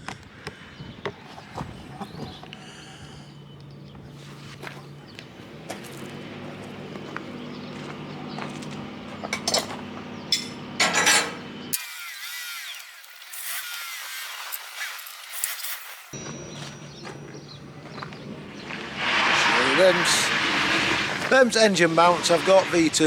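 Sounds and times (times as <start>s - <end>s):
metal knocks and scraping: 9.2s - 11.4s.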